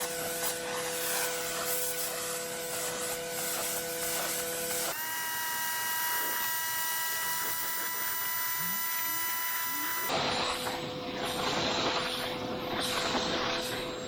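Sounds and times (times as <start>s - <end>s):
water spray hiss: 0.0s - 5.0s
pressure washer whine: 0.0s - 14.0s.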